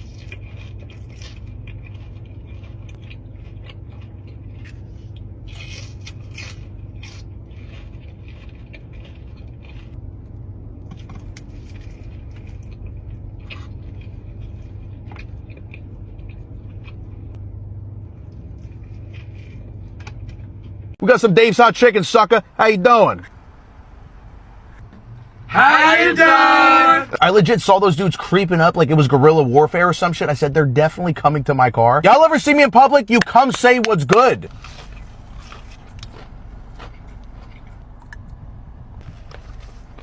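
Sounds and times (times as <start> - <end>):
person eating crunchy food: 0.0 - 10.0, 10.8 - 17.3, 18.2 - 20.5, 34.5 - 38.4
steady low hum: 0.0 - 40.0.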